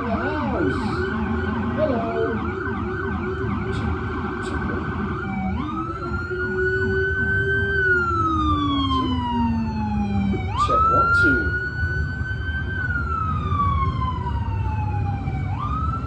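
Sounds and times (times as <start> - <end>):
police siren yelp and wail: 0.0 - 16.0.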